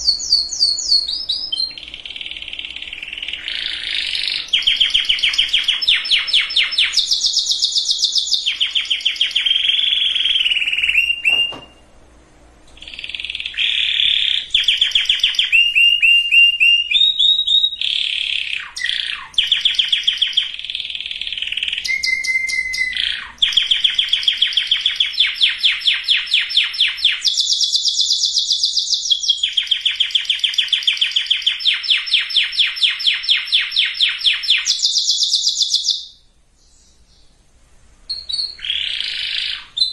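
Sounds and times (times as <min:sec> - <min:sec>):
canary singing trills: 0:00.0 - 0:11.9, 0:12.8 - 0:37.4, 0:38.1 - 0:39.9.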